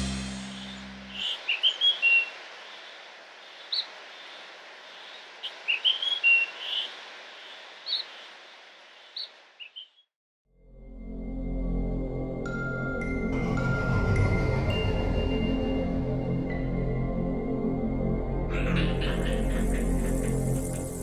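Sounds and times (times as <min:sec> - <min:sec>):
music chord: 0:00.0 - 0:01.1
outdoor ambience hiss: 0:00.0 - 0:10.0, 0:18.5 - 0:21.0
birds chirping: 0:00.0 - 0:10.1, 0:18.5 - 0:21.0.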